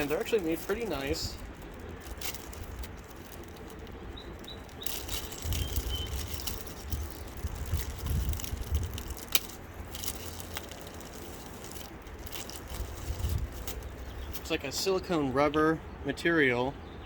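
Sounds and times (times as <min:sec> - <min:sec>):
low rumble: 0:00.6 - 0:14.4
bird chirps: 0:03.6 - 0:07.3.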